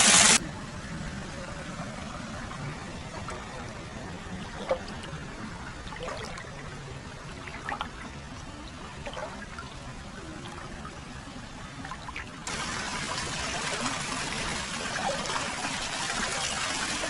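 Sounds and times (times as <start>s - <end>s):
water pouring and trickling: 1.6s - 17.0s
small splashes and drips: 4.3s - 11.1s, 11.8s - 12.5s.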